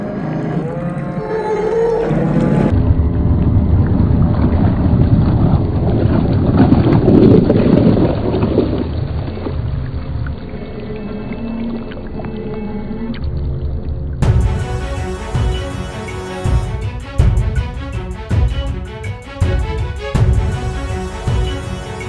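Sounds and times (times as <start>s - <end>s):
low rumble of model boat: 0.9s - 14.2s
music: 14.2s - 22.0s
water wash: 14.2s - 22.0s.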